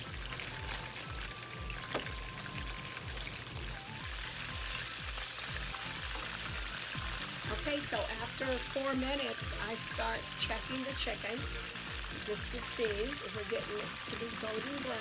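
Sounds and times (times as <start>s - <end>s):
background music with beat: 0.0s - 14.6s
wings sizzling in oil: 0.0s - 15.0s.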